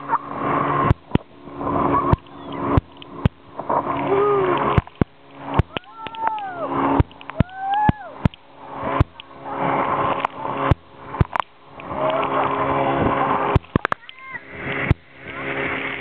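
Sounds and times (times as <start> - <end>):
motorboat engine running: 0.0 - 16.0
water rushing and splashing: 0.0 - 16.0
sharp knocks: 10.2 - 11.5.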